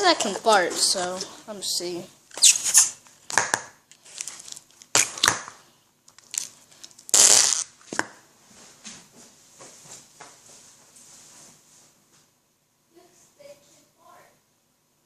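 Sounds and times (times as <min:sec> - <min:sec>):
noise putty fart sounds: 0:07.1 - 0:07.7.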